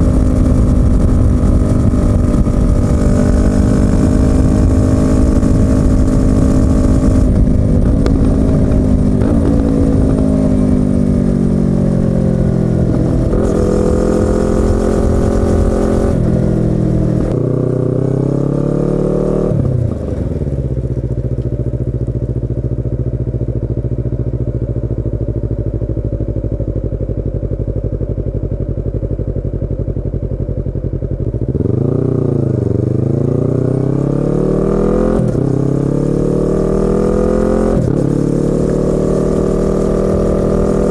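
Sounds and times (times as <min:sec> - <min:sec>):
motorcycle engine idling: 0:00.0 - 0:17.4, 0:20.2 - 0:33.4
motorcycle accelerating: 0:00.0 - 0:40.9
motorcycle engine downshifting: 0:00.0 - 0:40.9.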